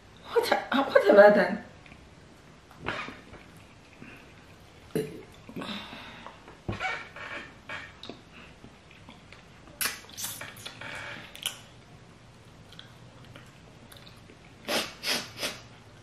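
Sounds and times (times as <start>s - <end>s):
wet chewing and lip-smacking: 8.0s - 11.7s, 12.6s - 14.7s.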